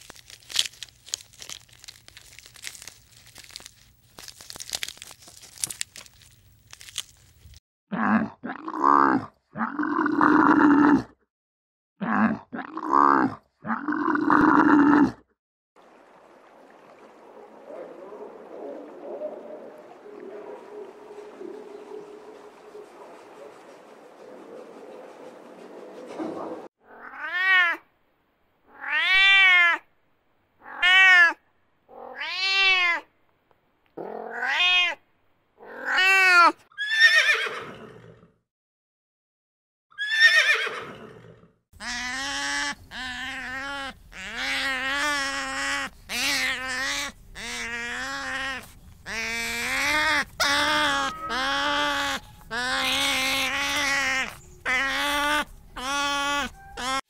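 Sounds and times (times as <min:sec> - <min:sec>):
sea otters calling: 0:17.0 - 0:26.7, 0:41.8 - 0:57.0
cat meowing: 0:28.7 - 0:29.8, 0:34.0 - 0:35.0, 0:46.1 - 0:57.0.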